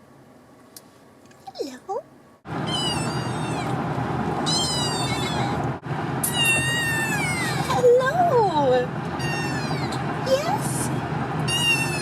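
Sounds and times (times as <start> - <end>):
kitten meowing: 2.7 - 3.8, 4.4 - 5.6, 6.2 - 7.8, 9.2 - 10.0, 11.5 - 12.0.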